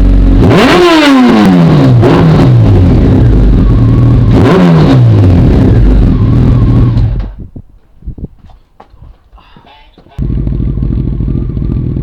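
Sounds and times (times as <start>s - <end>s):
motorcycle engine revving: 0.0s - 7.4s, 10.2s - 12.0s.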